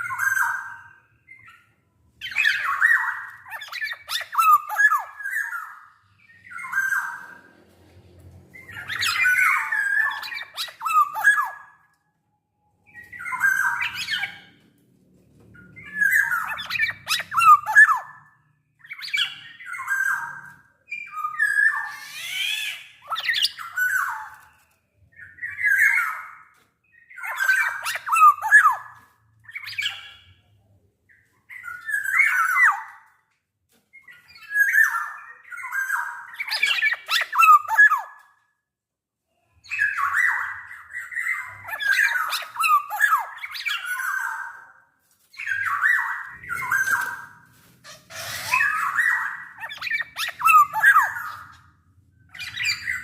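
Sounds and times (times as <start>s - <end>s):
bird singing fluty whistles: 48.6s - 51.4s.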